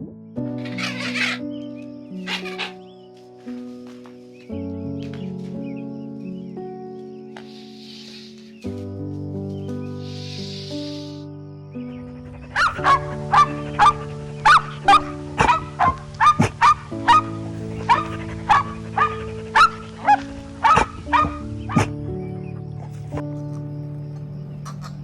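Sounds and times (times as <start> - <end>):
background music: 0.0 - 25.0
animal barking calls: 0.6 - 1.4, 2.2 - 2.8, 7.4 - 8.6, 10.0 - 11.2, 12.2 - 22.0, 24.7 - 25.0.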